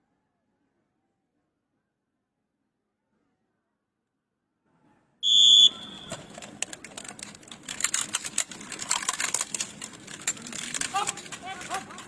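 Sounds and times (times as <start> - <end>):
outdoor background noise: 0.0 - 12.0
sharp clicks and knocks: 6.0 - 12.0.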